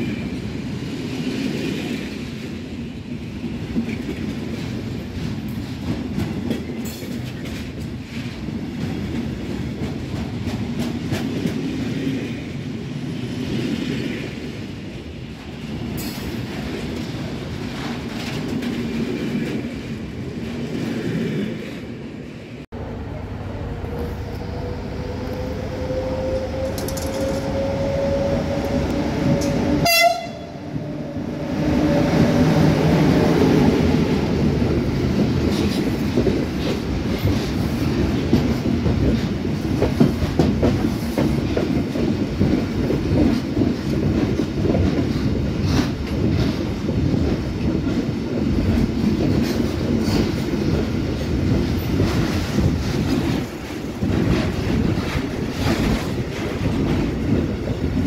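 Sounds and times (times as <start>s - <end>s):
train steady tone rising: 22.7s - 34.9s.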